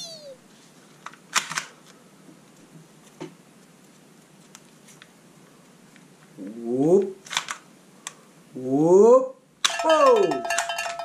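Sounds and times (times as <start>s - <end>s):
plastic toy gun clicks: 1.3s - 1.7s, 7.3s - 7.6s.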